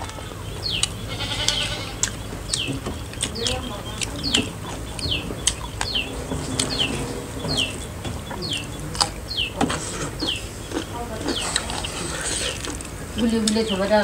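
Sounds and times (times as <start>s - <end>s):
bird chirping: 0.0s - 14.0s
people eating from metal plates: 0.0s - 14.0s.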